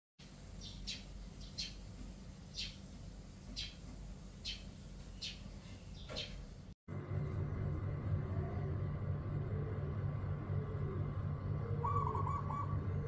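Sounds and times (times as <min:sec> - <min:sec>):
bird chirping: 0:00.5 - 0:01.9, 0:02.5 - 0:02.9, 0:03.5 - 0:03.8, 0:04.4 - 0:06.4, 0:11.6 - 0:13.0
low steady rumble: 0:06.6 - 0:13.0.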